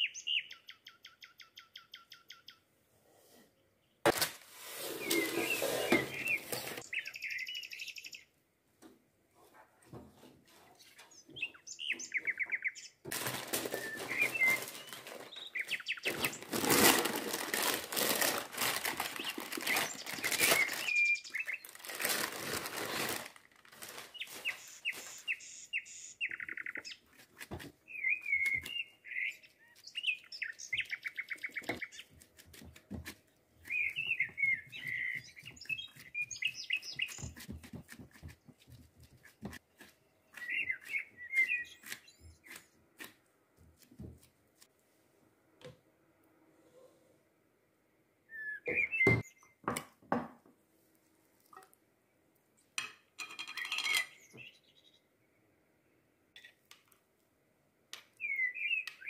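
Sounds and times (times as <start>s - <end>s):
small bird chirping and trilling: 0.0s - 2.6s, 5.2s - 8.3s, 10.8s - 13.0s, 13.7s - 16.5s, 27.9s - 32.2s, 33.6s - 37.4s, 53.4s - 55.1s, 58.2s - 59.0s
baking paper crinkling: 4.1s - 6.9s, 13.0s - 25.4s.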